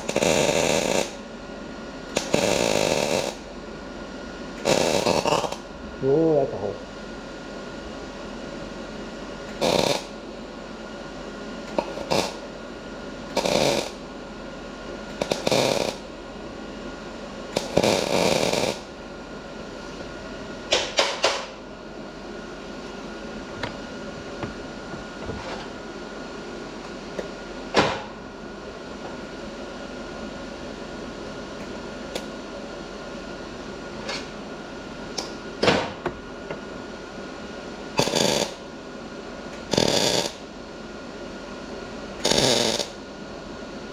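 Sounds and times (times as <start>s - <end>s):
arc welding bursts: 0.0s - 1.2s, 2.2s - 3.4s, 4.6s - 5.5s, 9.6s - 10.1s, 12.0s - 12.4s, 13.3s - 14.0s, 15.2s - 16.0s, 17.6s - 18.8s, 38.0s - 38.6s, 39.7s - 40.4s, 42.2s - 43.0s
steady welder hum: 0.0s - 43.9s.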